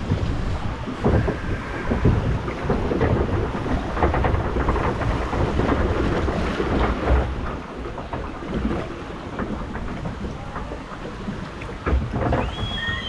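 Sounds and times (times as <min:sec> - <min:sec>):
water splashing: 0:00.0 - 0:13.0
wind buffeting microphone: 0:00.0 - 0:13.0.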